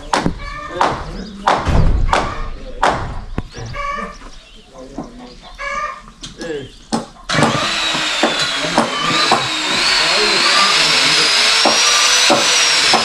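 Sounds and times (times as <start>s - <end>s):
short knocks: 0.1s - 4.4s
power tool motor whine: 7.3s - 13.0s.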